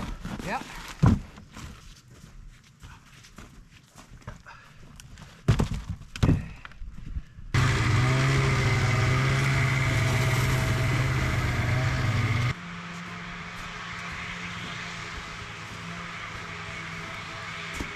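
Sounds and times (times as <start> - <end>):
small engine running: 7.6 - 17.9.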